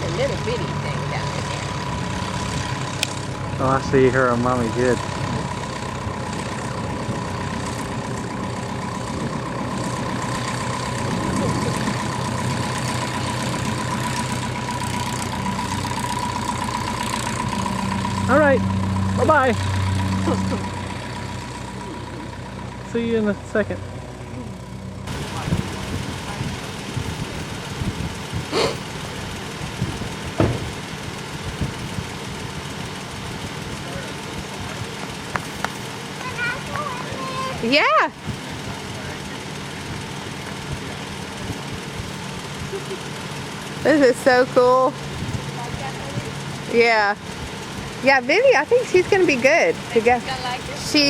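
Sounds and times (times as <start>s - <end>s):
engine idling: 0.0s - 51.0s
thin whine: 0.0s - 51.0s
sharp knock: 30.4s - 30.8s.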